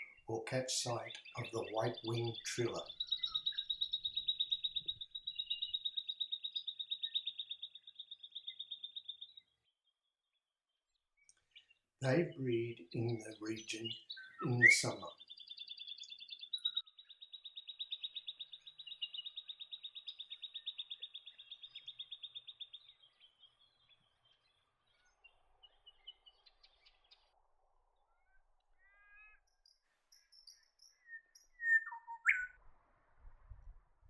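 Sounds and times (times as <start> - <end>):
bird trilling: 0.0 - 9.4, 11.6 - 23.0, 30.4 - 32.6
short bird calls: 0.0 - 9.4, 11.2 - 27.2, 28.2 - 32.6.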